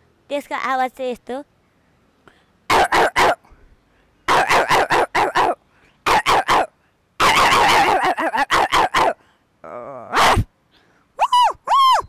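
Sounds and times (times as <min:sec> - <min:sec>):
woman imitating dog barks: 0:02.7 - 0:03.4, 0:04.3 - 0:09.2, 0:10.0 - 0:10.5.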